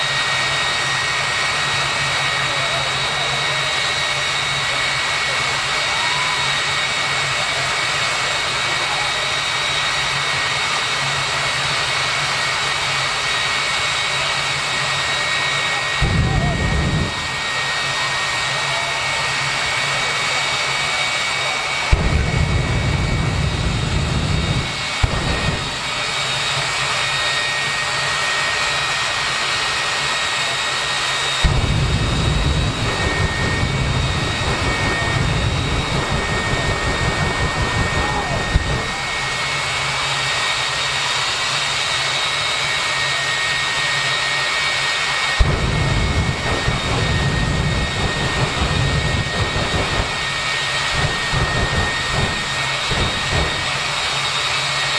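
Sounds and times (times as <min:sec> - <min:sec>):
jet engine turbine whine: 0:00.0 - 0:54.9
low rumble: 0:16.0 - 0:17.5, 0:21.9 - 0:26.4, 0:31.4 - 0:39.6, 0:45.4 - 0:54.0.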